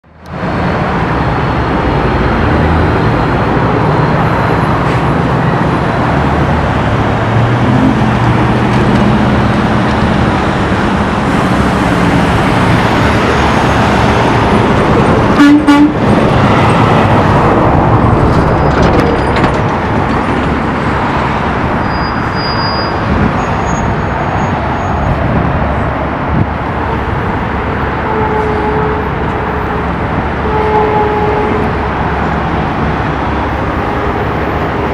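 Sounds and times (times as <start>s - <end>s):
truck diesel engines accelerating: 0.0s - 34.9s
truck horn blast: 15.3s - 16.1s, 28.0s - 31.8s.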